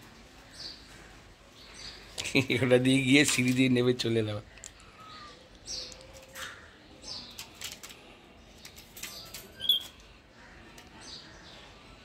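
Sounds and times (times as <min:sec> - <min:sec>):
bird chirp: 0:04.4 - 0:12.0.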